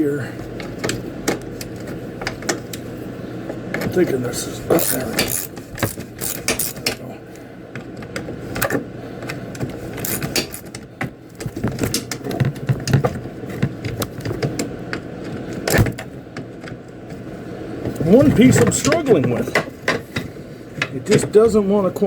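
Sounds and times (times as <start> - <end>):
hand tools clicking on metal: 4.7 - 7.0, 10.0 - 10.8.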